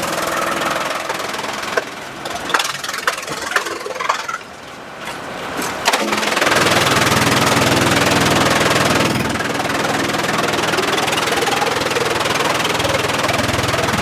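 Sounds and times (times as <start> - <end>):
sharp knocks and clanks: 0.0 - 4.4
sawmill engine drone: 0.0 - 5.0, 5.8 - 14.0.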